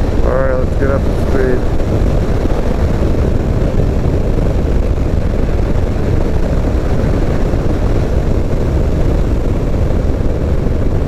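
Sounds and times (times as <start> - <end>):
motorcycle engine drone: 0.0 - 11.0
wind rushing over microphone: 0.0 - 11.0.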